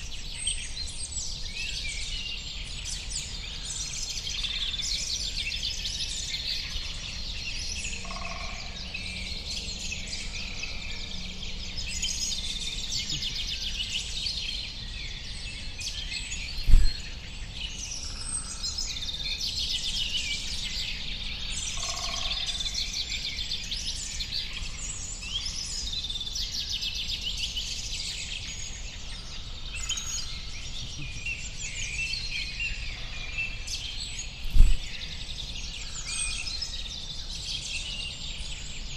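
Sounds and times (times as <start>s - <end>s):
small birds chirping: 0.0s - 38.9s
low thump: 16.6s - 17.0s.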